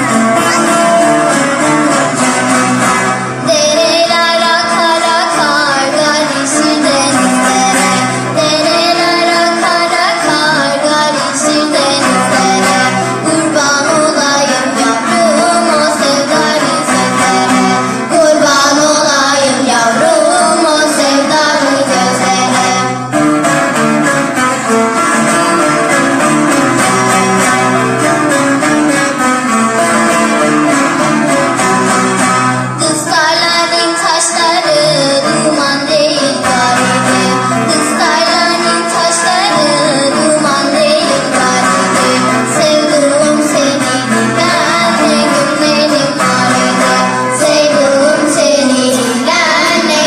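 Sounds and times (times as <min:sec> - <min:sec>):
long-necked lutes playing folk tune: 0:00.0 - 0:50.0
plucked string ensemble: 0:00.0 - 0:50.0
voices singing wavering melody: 0:32.8 - 0:50.0.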